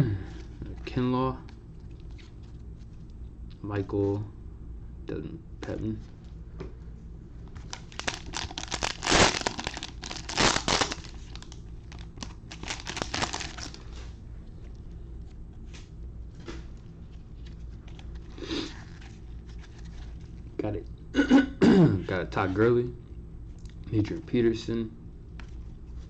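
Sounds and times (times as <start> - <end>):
plastic wrapper ripping: 7.6 - 13.8
plastic wrapper crinkling: 7.6 - 14.0
cards rustling: 7.6 - 14.1, 16.4 - 20.4.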